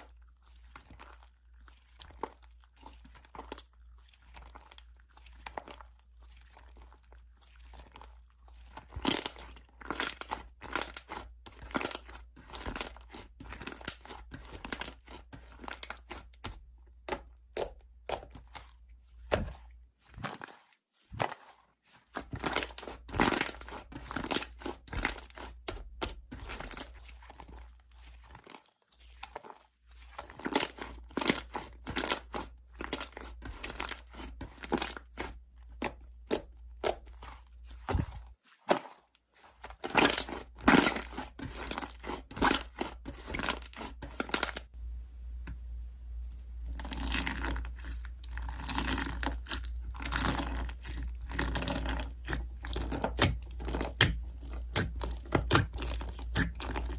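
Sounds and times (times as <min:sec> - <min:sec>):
slime squished by hand: 0:00.0 - 0:44.7, 0:46.2 - 0:56.9
low hum: 0:44.8 - 0:46.8.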